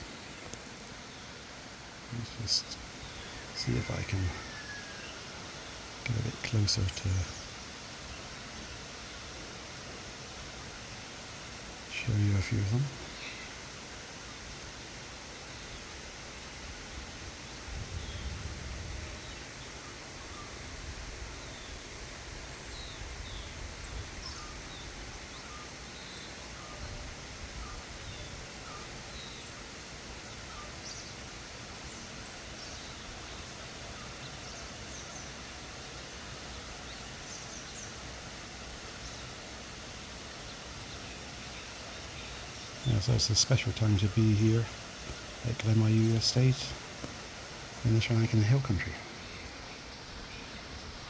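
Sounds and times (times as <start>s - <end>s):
outdoor background hiss: 0.0s - 51.0s
birds chirping and calling: 2.2s - 7.6s, 40.5s - 51.0s.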